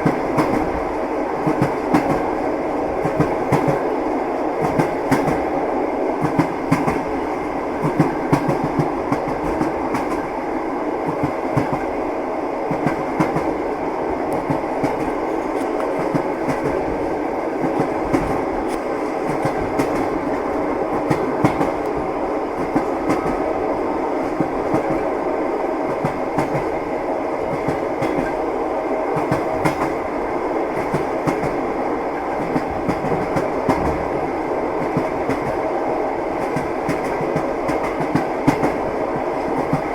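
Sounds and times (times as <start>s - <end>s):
train running rumble: 0.0s - 39.9s
train wheels clattering: 14.3s - 22.0s, 27.5s - 28.5s.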